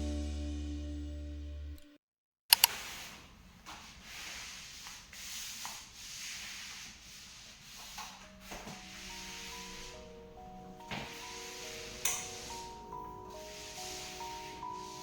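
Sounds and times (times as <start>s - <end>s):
sharp clicks: 2.5s - 2.7s
surface being scrubbed by hand: 2.8s - 15.0s.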